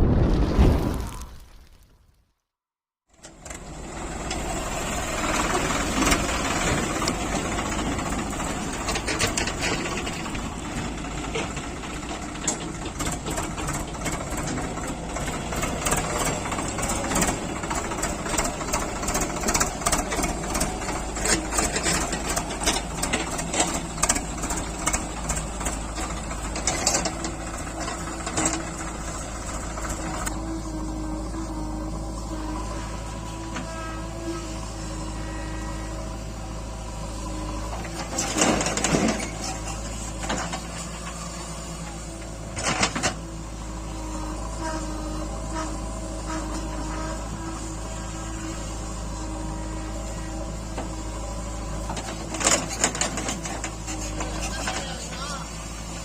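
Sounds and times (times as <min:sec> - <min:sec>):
diesel engine running: 0:03.1 - 0:56.0
rapid clatter of clicks and knocks: 0:08.7 - 0:10.4.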